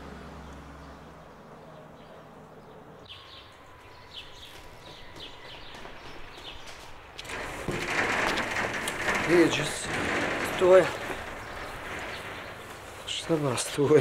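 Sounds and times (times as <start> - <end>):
faint outdoor background noise: 0.0 - 14.0
steady rushing noise: 7.2 - 14.0.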